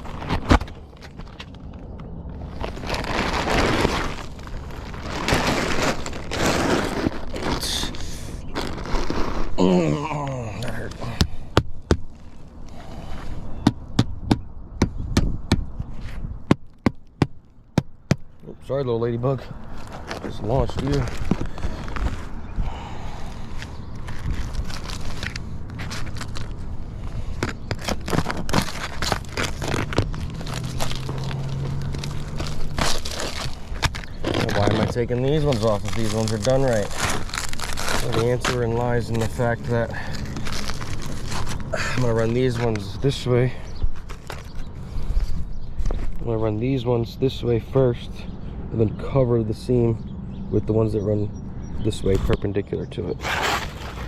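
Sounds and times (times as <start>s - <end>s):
scraping on roofing shingles: 0.0s - 1.6s, 2.4s - 9.7s, 19.3s - 46.2s, 53.1s - 54.0s.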